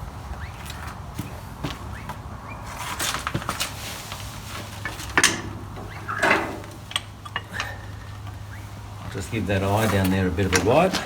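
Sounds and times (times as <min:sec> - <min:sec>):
hand tools clinking on steel: 0:03.0 - 0:11.0.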